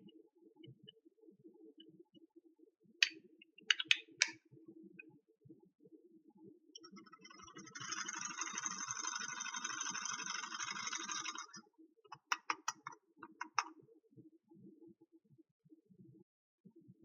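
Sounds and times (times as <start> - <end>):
plastic toy pieces clicking: 3.7 - 4.0, 7.2 - 11.6, 12.2 - 13.7.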